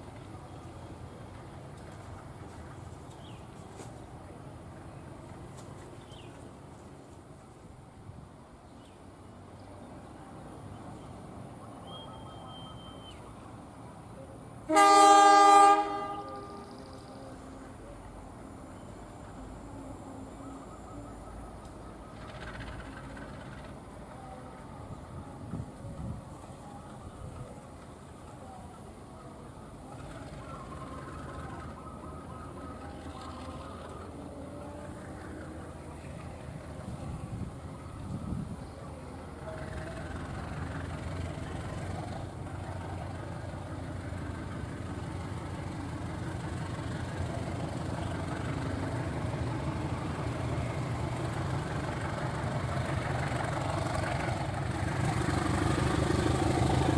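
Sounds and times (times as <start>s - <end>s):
train running: 0.0s - 56.9s
faint high whistle: 11.8s - 13.4s, 20.0s - 21.8s
train horn blast: 14.7s - 16.8s.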